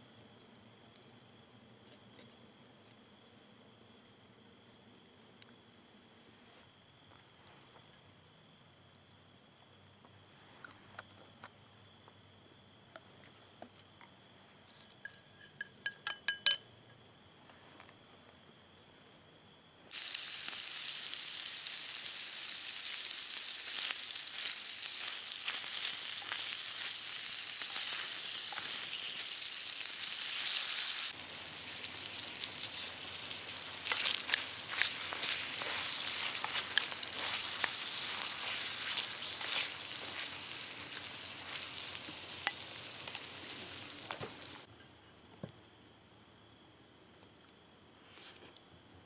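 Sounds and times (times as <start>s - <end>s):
sausage sizzling in pan: 19.9s - 44.7s
fat popping and crackling: 23.2s - 44.6s.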